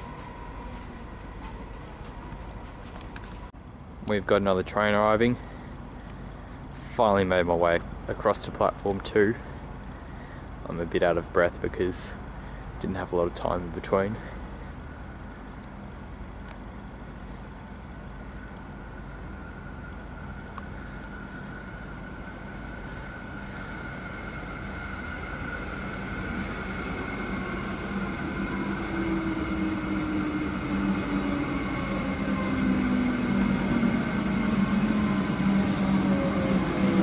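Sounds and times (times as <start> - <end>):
electric train approaching: 0.0 - 3.5, 14.3 - 37.0
train motor whine: 0.0 - 3.5, 18.2 - 37.0.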